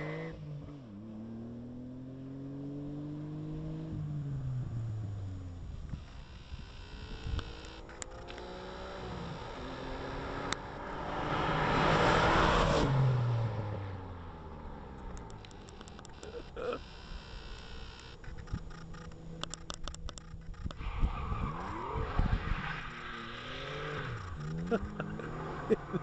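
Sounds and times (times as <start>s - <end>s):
car driving past: 8.4s - 15.6s.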